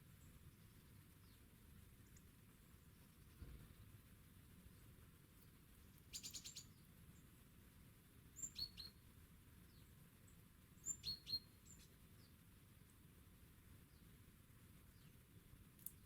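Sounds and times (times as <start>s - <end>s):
faint garden background: 0.0s - 16.0s
small songbird calls: 4.7s - 7.4s, 8.3s - 12.4s.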